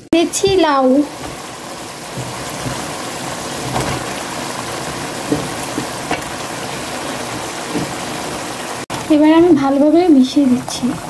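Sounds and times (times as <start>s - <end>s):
curry sizzling in a pot: 0.0s - 11.0s
short knocks: 4.8s - 6.4s.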